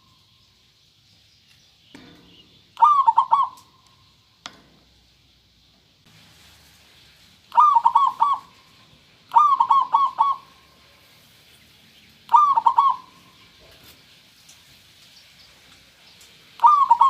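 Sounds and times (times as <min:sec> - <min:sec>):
dove cooing: 0:02.8 - 0:03.8, 0:07.5 - 0:10.8, 0:12.3 - 0:13.4, 0:16.6 - 0:17.0.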